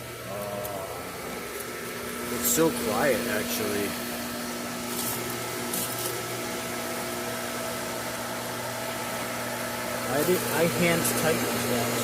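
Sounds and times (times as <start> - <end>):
pool pump motor humming: 0.0 - 12.0.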